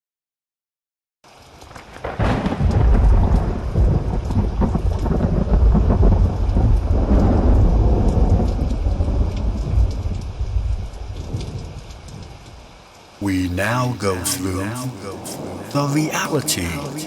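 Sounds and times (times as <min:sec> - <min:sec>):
rain hiss: 0:01.3 - 0:17.0
thunder rumbling: 0:02.0 - 0:11.4.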